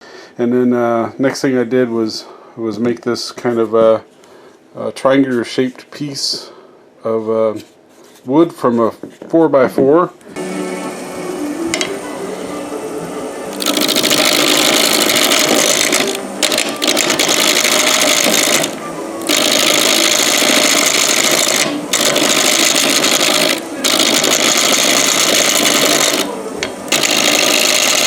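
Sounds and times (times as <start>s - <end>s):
lathe tool cutting wood: 13.5s - 26.3s, 26.9s - 28.0s.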